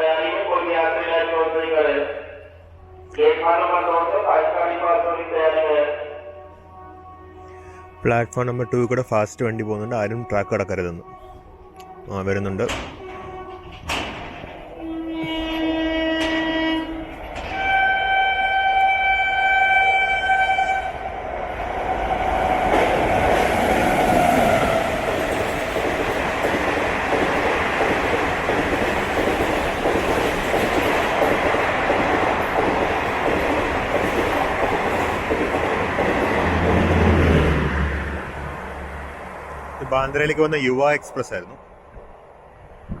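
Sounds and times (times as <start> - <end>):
locomotive horn blasts: 2.3 - 4.2, 4.9 - 21.0
train wheels rattling over track: 12.4 - 18.2, 21.8 - 38.3.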